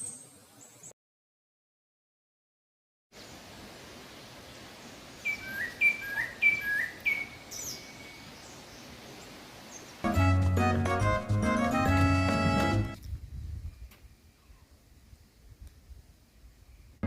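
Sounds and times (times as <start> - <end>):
faint forest hiss: 0.0 - 0.9, 3.2 - 10.1, 13.0 - 17.0
music: 10.0 - 13.0.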